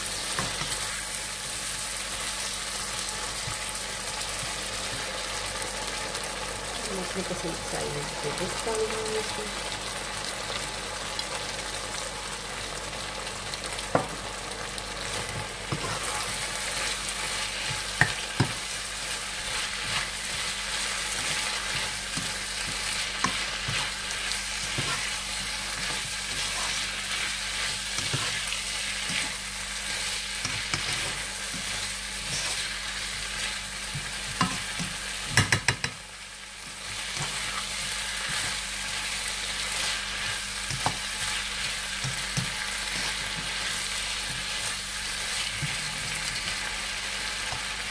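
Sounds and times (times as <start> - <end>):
food sizzling in a wok: 0.0 - 47.9
spatula tapping on pan: 35.3 - 36.0.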